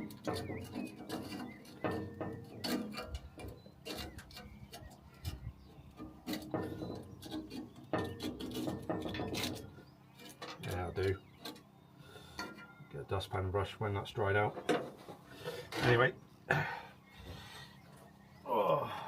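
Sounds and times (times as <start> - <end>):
knocking and scraping weed: 0.0 - 11.6.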